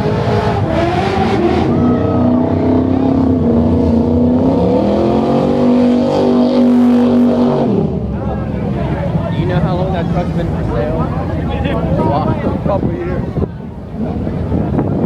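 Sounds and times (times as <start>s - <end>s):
car engine revving hard: 0.0s - 8.4s.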